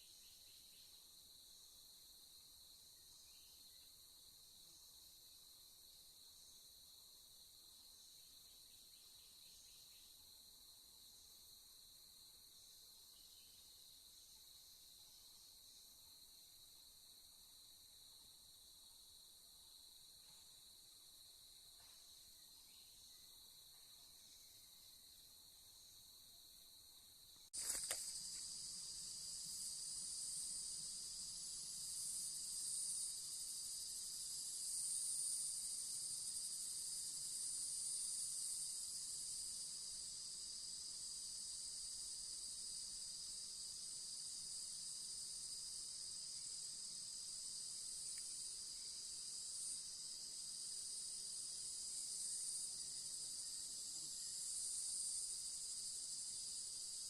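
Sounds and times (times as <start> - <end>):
insects chorus: 0.0 - 57.0
brief click: 27.6 - 28.1.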